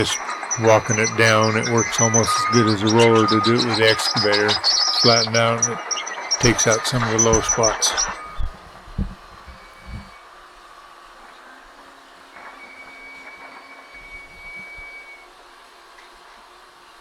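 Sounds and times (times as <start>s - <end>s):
excavator running: 0.0s - 8.3s
thin steady squeal: 0.0s - 10.2s.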